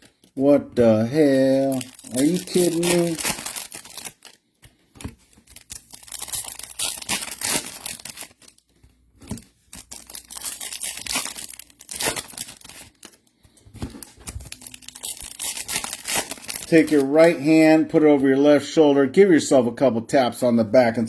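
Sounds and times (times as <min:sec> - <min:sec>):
foil wrappers tearing and crinkling: 0:00.9 - 0:17.5.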